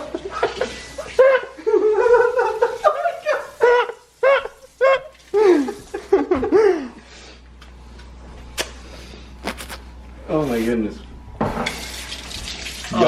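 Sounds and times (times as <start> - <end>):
people laughing: 0.0 - 7.0.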